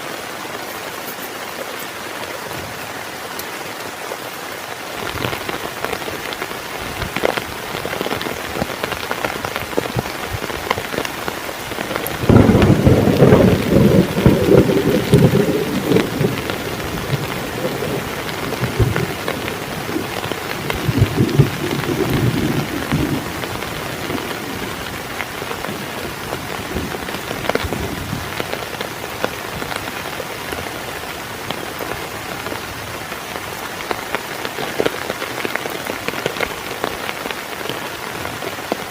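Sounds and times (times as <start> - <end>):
heavy rain falling: 0.0 - 38.9
thunder clap and rumbling: 6.9 - 28.6.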